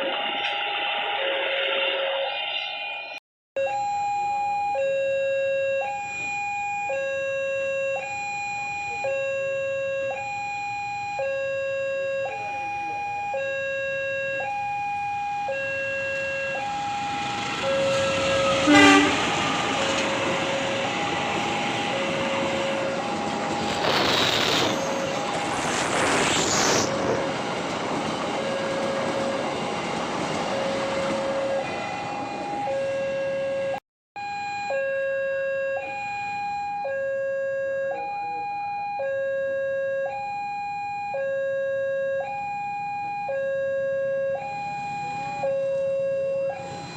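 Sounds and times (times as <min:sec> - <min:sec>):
level crossing alarm: 0:00.0 - 0:25.9, 0:26.7 - 0:46.9
train rumble: 0:15.2 - 0:33.8.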